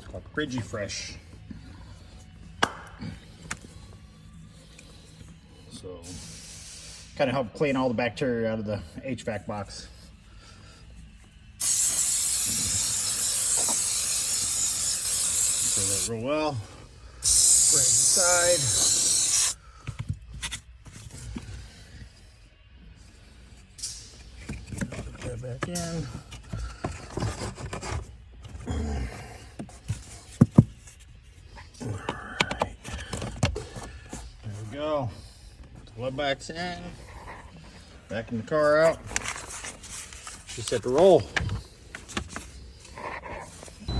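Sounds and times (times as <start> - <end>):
aerosol can spraying: 11.6 - 16.1, 17.2 - 19.6
plastic parts scraping and rubbing: 26.4 - 28.6.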